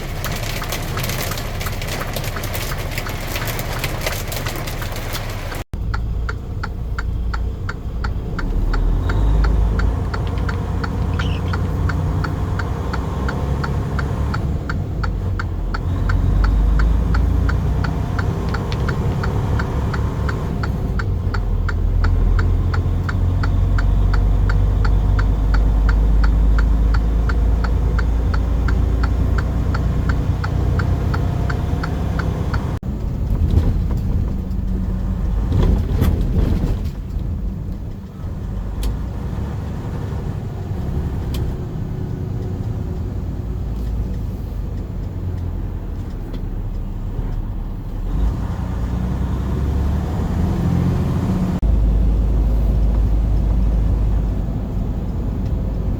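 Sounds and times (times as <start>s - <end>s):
regular ticking: 0.0s - 32.9s
truck engine and road noise: 0.0s - 55.9s.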